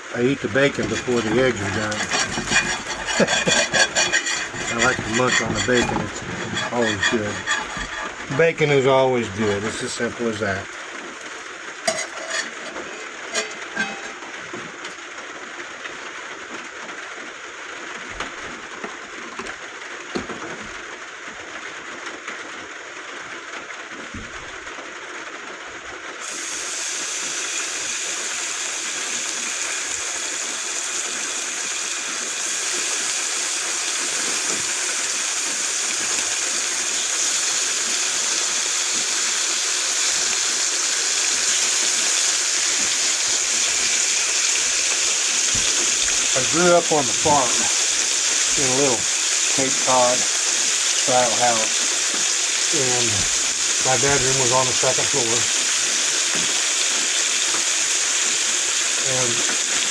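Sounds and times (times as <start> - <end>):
steady hissing noise: 0.0 - 16.2, 26.2 - 59.9.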